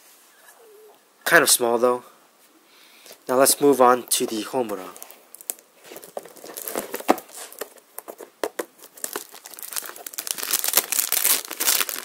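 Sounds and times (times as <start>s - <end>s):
packaging crinkling and tearing: 5.0s - 7.8s, 8.6s - 12.0s.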